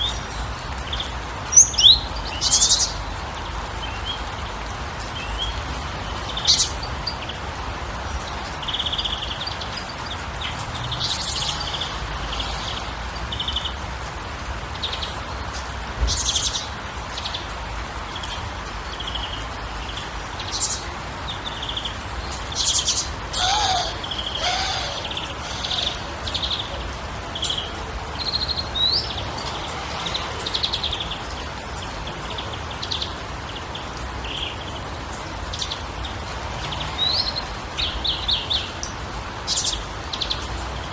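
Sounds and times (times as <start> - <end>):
birds chirping and calling: 8.4 - 13.8, 21.6 - 32.0.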